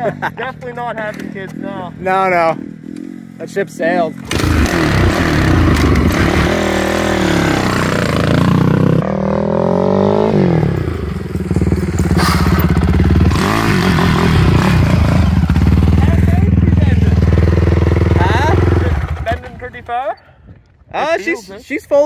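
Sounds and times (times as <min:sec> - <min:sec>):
mini bike engine revving: 0:04.2 - 0:19.4.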